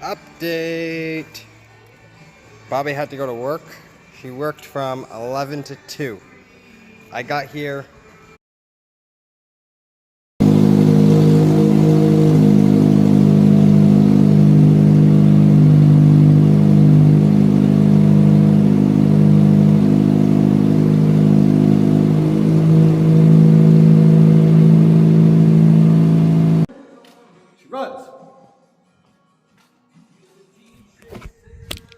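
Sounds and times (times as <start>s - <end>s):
car engine running: 10.4s - 26.7s.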